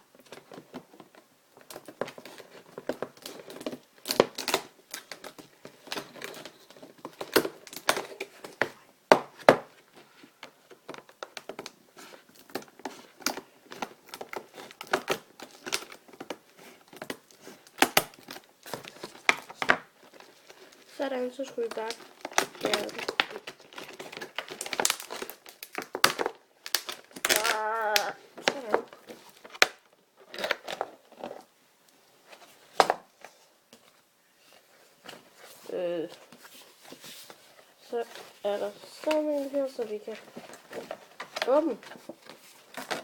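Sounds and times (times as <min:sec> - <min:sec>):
plastic packaging clicks and snaps: 0:01.6 - 0:08.7, 0:10.4 - 0:20.8, 0:21.5 - 0:31.0
packaging crinkling and tearing: 0:01.6 - 0:08.8, 0:09.8 - 0:31.5, 0:34.8 - 0:43.0.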